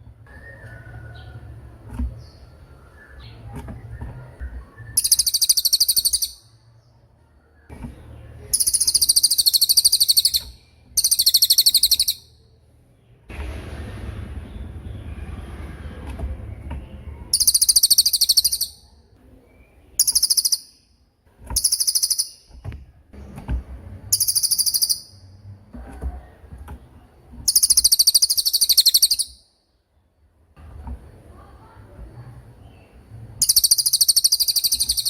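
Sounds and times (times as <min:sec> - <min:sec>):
low rumbling background noise: 0:00.0 - 0:35.0
bird high rattling trills: 0:24.1 - 0:25.2.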